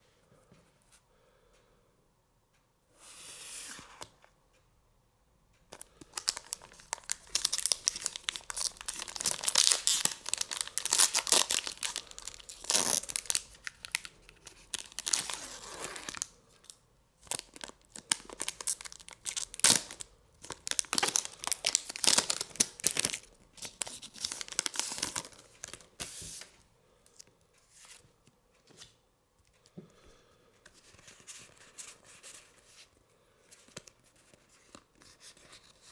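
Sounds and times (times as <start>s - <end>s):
foil wrapper tearing and crinkling: 5.8s - 16.3s, 17.3s - 25.9s.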